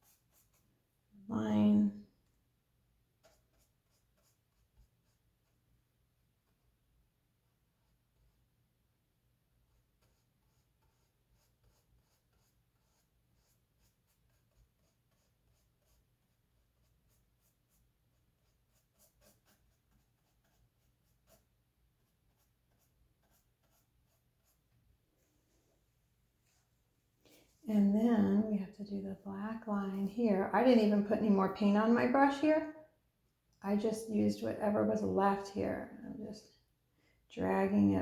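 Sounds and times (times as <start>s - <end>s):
paintbrush scratching canvas: 0.0s - 0.7s, 3.2s - 5.6s, 9.7s - 24.8s.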